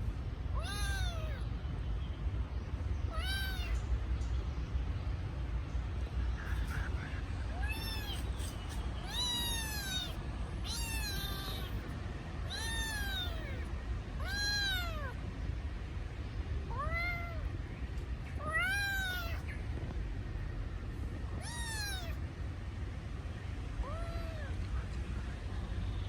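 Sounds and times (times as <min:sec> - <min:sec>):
kitten meowing: 0:00.6 - 0:01.4, 0:03.1 - 0:03.8, 0:07.5 - 0:15.2, 0:16.7 - 0:17.5, 0:18.4 - 0:19.4, 0:21.4 - 0:22.2.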